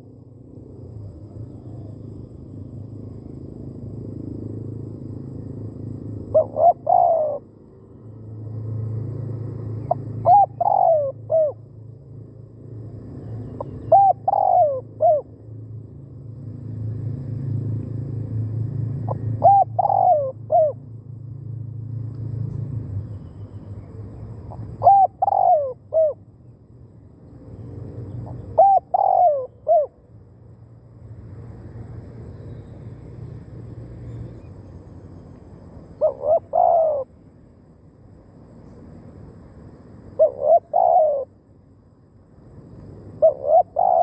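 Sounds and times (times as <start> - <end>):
dove cooing: 6.3 - 7.5, 9.9 - 11.6, 13.5 - 15.3, 19.1 - 20.8, 24.6 - 26.2, 28.2 - 30.0, 36.0 - 37.1, 40.2 - 41.3, 43.2 - 44.0.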